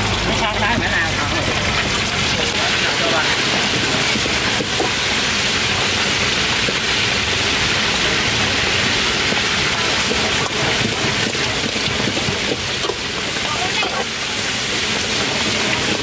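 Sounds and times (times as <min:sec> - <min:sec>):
faint oil crackles: 0:00.0 - 0:16.0
food sizzling in hot oil: 0:00.0 - 0:16.0.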